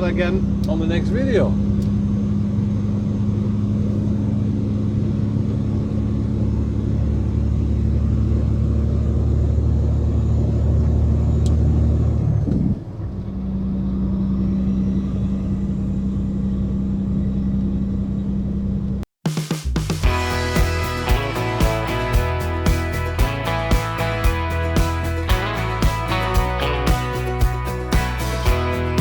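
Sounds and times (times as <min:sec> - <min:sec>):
diesel truck engine running: 0:20.0 - 0:29.0.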